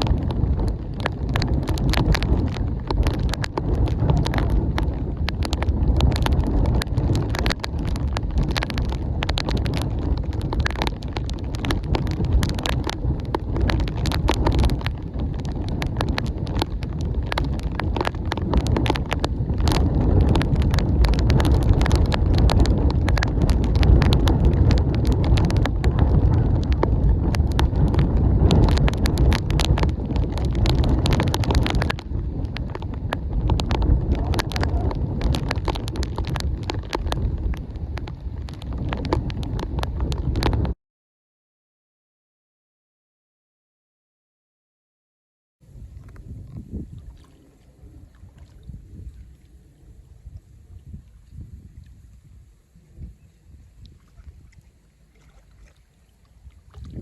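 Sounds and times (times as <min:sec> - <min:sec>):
raindrops tapping: 0:00.0 - 0:40.8, 0:56.5 - 0:57.0
wind buffeting microphone: 0:00.0 - 0:40.8, 0:45.6 - 0:57.0.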